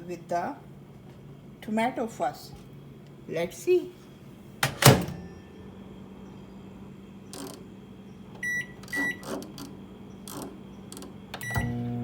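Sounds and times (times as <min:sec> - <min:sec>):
microwave door shutting: 0:04.6 - 0:05.4, 0:11.4 - 0:12.0
microwave humming: 0:04.6 - 0:12.0
short keypad beeps: 0:08.4 - 0:09.2.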